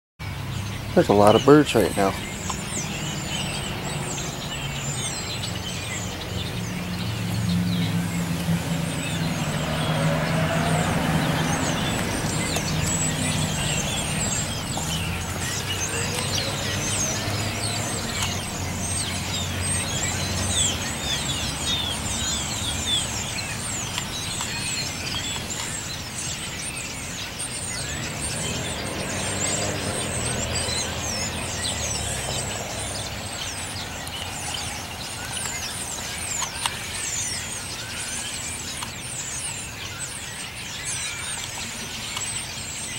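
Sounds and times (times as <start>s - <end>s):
flock of birds chirping: 0.2s - 42.9s
low engine hum: 0.4s - 25.8s.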